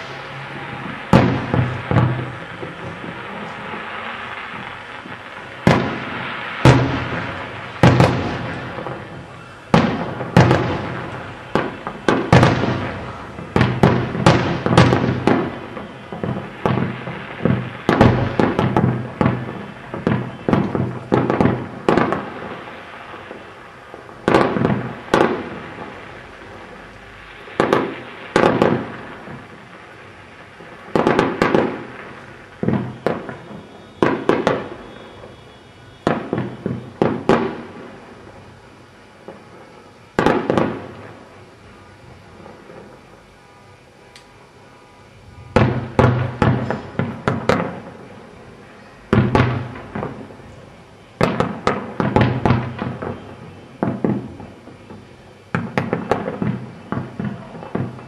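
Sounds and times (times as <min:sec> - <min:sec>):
fireworks bangs with echo: 0:00.0 - 0:43.2, 0:45.1 - 0:58.0.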